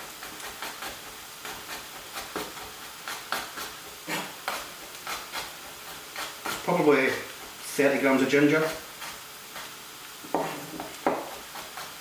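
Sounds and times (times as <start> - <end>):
onions sizzling in a frying pan: 0.0 - 12.0
knife tapping on chopping board: 10.3 - 11.9.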